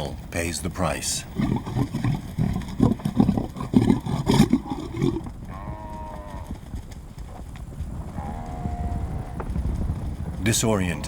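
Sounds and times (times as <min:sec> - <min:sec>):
buffalo bawling: 0:00.0 - 0:06.6, 0:10.4 - 0:11.0
lions growling: 0:00.0 - 0:11.0.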